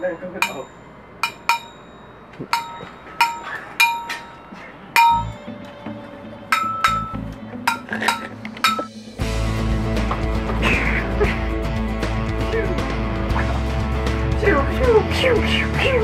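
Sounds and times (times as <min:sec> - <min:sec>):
metallic clangs with ringing ping: 0:00.0 - 0:05.5, 0:06.5 - 0:09.0
low background music: 0:00.0 - 0:16.0.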